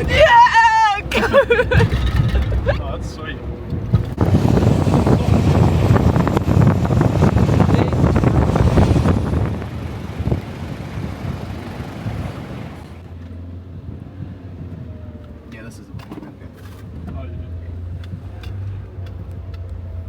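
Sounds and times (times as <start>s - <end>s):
wind buffeting microphone: 0.0s - 13.1s
vehicle rumbling off-road: 0.0s - 20.0s.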